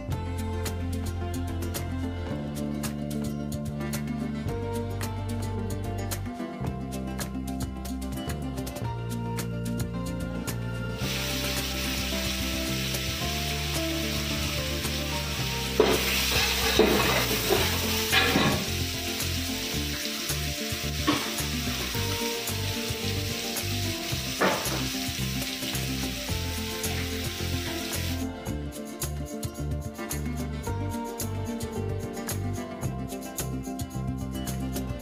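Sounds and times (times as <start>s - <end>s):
vegetables sizzling in oil: 10.9s - 28.3s.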